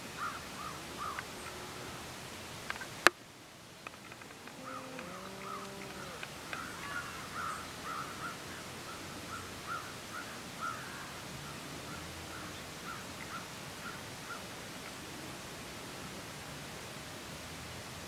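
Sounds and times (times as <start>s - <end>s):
steady hiss: 0.0s - 18.0s
bird calling with short notes: 4.5s - 11.0s.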